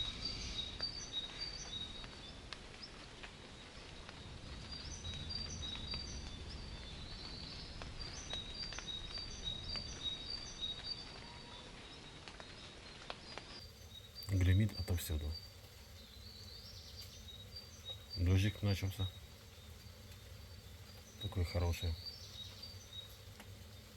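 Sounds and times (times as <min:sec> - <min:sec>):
faint clicks: 0:22.3 - 0:23.9.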